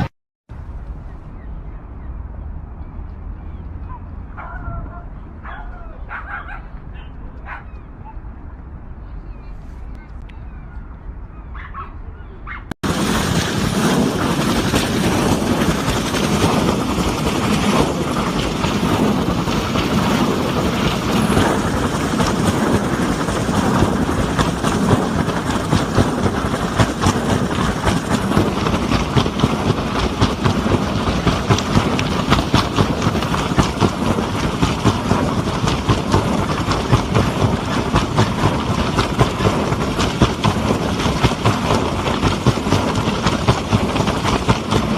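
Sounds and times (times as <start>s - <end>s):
helicopter rotor chopping: 12.8s - 44.9s.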